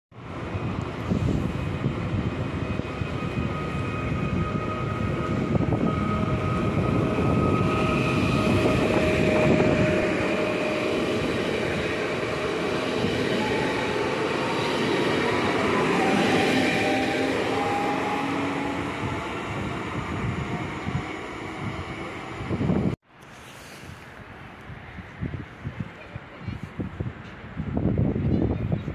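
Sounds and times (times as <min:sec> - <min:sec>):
wheels rumbling on rails: 0:00.2 - 0:23.5
electric traction drive whine: 0:00.3 - 0:23.0.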